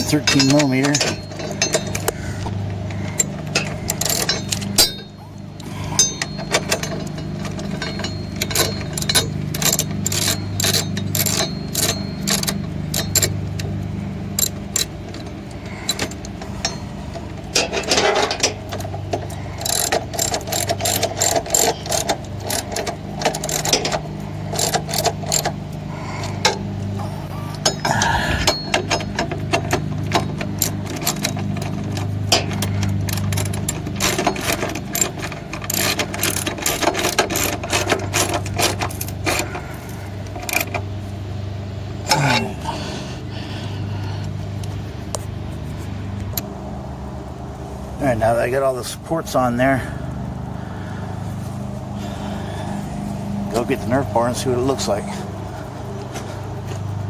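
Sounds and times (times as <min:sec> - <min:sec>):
steady low hum: 0:00.0 - 0:57.0
socket ratchet clicking: 0:06.0 - 0:13.7, 0:14.4 - 0:14.9, 0:19.6 - 0:25.6.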